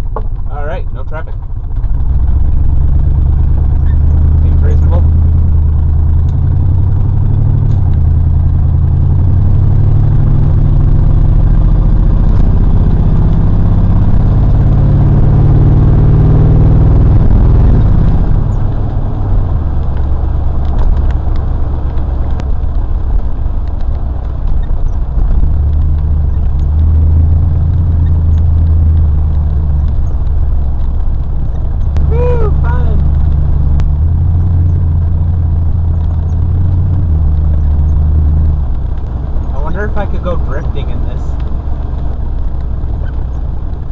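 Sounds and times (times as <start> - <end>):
road noise: 0.0 - 43.9
rough truck engine: 0.0 - 43.9.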